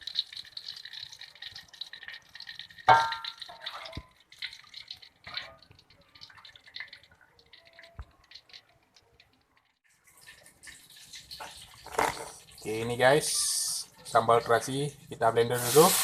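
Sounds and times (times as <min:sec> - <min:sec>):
small clatters and knocks: 0:00.0 - 0:12.6
metal pot clanking: 0:01.6 - 0:04.2, 0:10.1 - 0:12.6.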